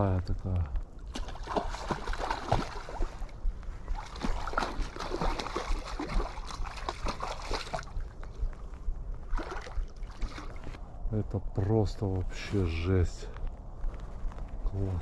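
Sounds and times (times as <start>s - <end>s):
water splashing in stream: 1.1s - 8.6s, 9.2s - 10.8s.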